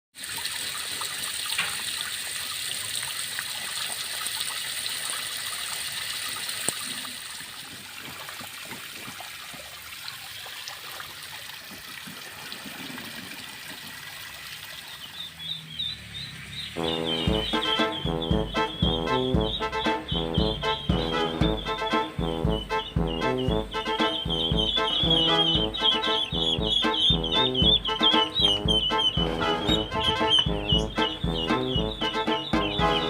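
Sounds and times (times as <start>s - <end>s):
water trickling into a pool: 0.1s - 16.8s.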